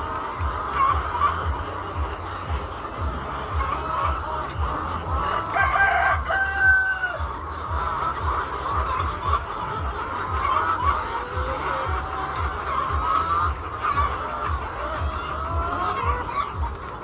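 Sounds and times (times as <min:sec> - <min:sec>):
hens clucking: 0:00.0 - 0:17.0
rooster crowing: 0:05.5 - 0:07.2.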